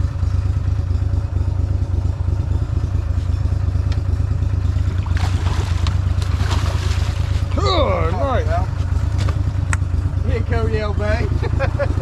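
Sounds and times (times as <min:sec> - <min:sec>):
boat motor rumbling: 0:00.0 - 0:12.0.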